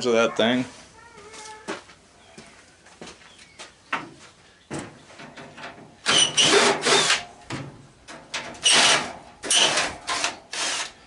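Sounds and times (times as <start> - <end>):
cordless drill whining: 6.1 - 7.2, 8.6 - 11.0.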